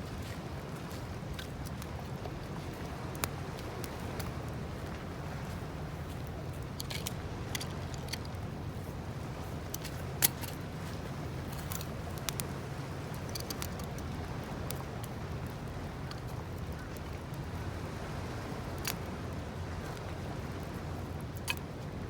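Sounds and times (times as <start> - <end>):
campfire crackling and popping: 11.4 - 14.8.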